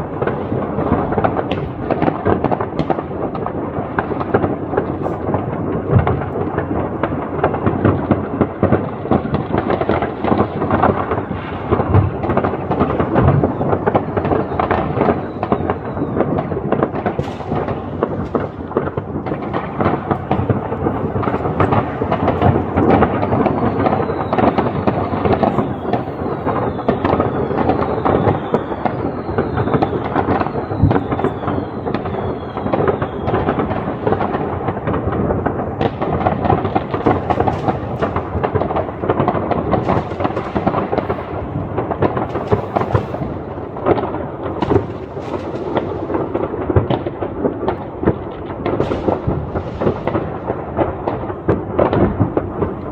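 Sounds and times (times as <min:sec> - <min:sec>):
fireworks bangs and crackling: 0:00.0 - 0:52.9
falling firework whistles: 0:12.3 - 0:34.7, 0:36.4 - 0:41.4, 0:42.0 - 0:46.4.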